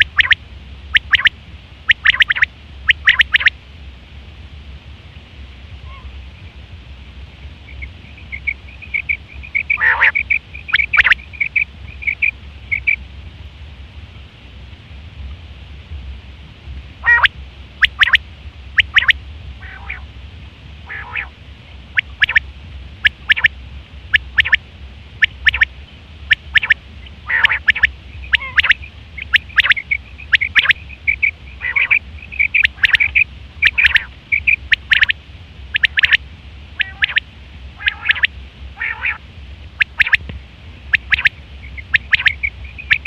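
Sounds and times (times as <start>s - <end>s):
quail calling: 0.0s - 1.3s, 1.9s - 3.6s, 5.8s - 6.2s, 7.7s - 13.0s, 17.0s - 18.2s, 18.8s - 20.1s, 20.8s - 21.3s, 21.9s - 22.4s, 23.1s - 23.5s, 24.1s - 24.6s, 25.2s - 25.7s, 26.3s - 36.2s, 36.8s - 37.2s, 37.8s - 39.2s, 39.8s - 40.2s, 40.9s - 43.0s.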